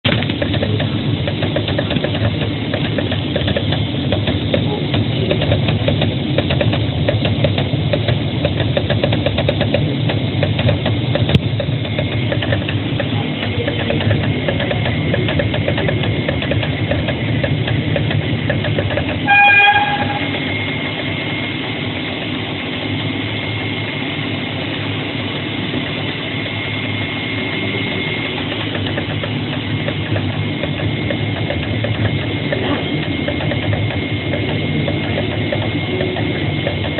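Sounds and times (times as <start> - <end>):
cutter plotter mechanical drone: 0.1 - 36.9
short beep: 19.2 - 20.4
thin high whine: 19.2 - 31.3.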